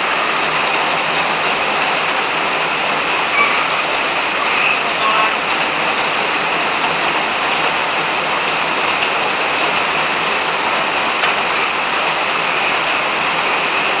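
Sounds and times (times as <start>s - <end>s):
rain falling: 0.0s - 14.0s
frogs calling: 3.1s - 5.4s.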